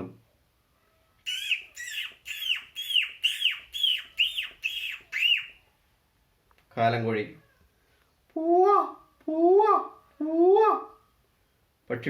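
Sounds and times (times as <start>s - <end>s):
person imitating chick peeping: 1.3s - 5.6s.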